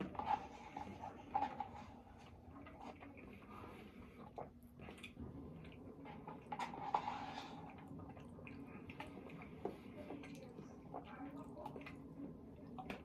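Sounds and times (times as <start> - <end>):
chewing and wet mouth sounds: 2.2 - 6.7, 7.5 - 13.0.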